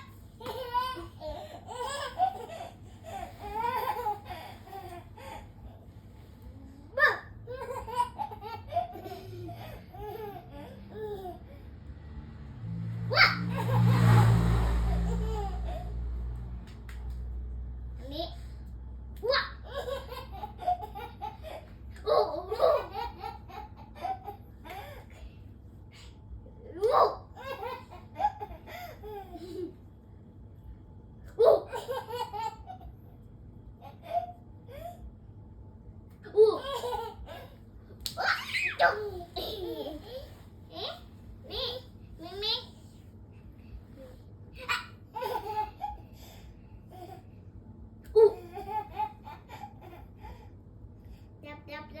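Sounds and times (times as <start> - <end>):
baby laughing: 0.0 - 5.8, 7.0 - 11.5, 19.2 - 25.0, 36.4 - 42.6.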